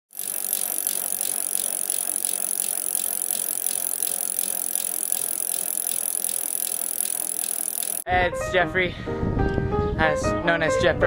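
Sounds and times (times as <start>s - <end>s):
bicycle rattling and clicking: 0.1s - 8.0s.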